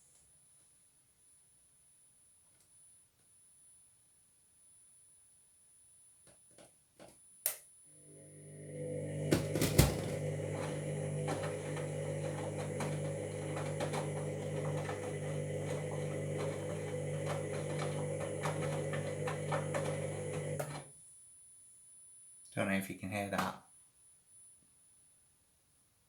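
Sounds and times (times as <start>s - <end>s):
washing machine motor hum: 8.0s - 20.9s.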